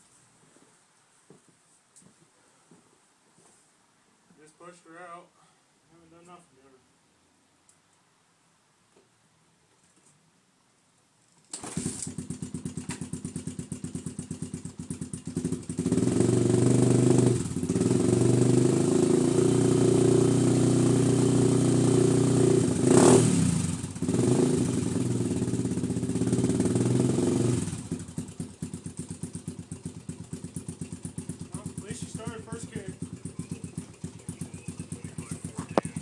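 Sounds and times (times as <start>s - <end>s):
motorcycle engine kick-started: 11.5s - 36.0s
engine revving: 15.2s - 29.5s, 30.2s - 36.0s.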